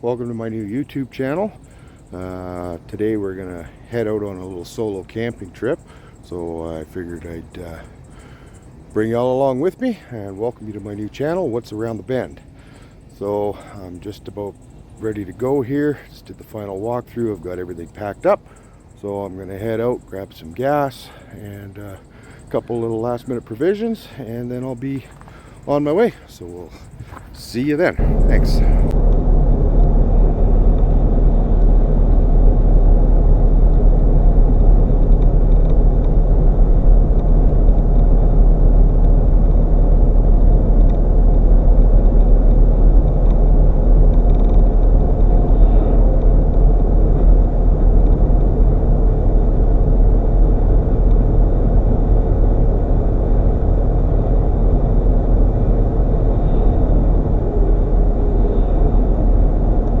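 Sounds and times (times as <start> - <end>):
car engine and road noise: 0.0 - 9.0, 21.8 - 60.0.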